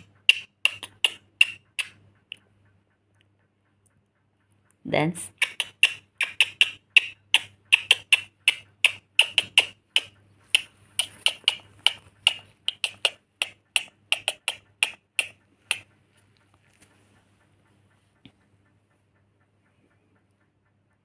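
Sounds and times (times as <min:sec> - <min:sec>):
finger snaps: 0:00.0 - 0:02.4, 0:05.4 - 0:15.9.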